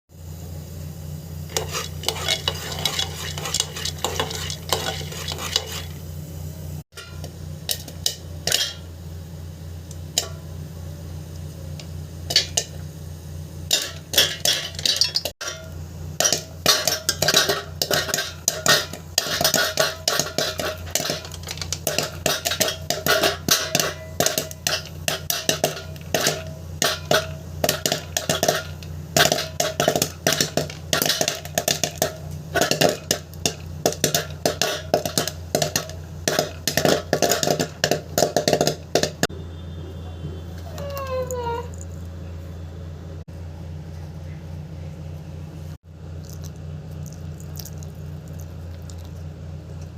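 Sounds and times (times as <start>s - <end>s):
steady low hum: 0.2s - 40.7s
popcorn kernels popping: 1.5s - 6.1s, 6.9s - 8.9s, 9.8s - 10.6s, 11.2s - 39.3s.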